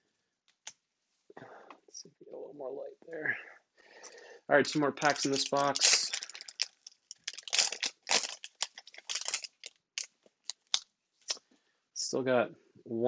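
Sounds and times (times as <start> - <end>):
wrapper tearing and crinkling: 5.0 - 11.4.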